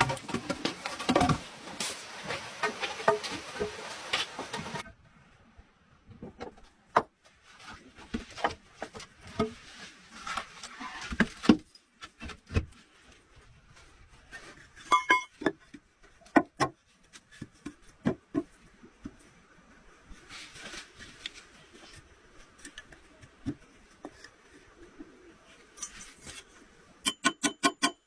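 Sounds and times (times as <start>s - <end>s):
rustling: 0.0s - 4.8s.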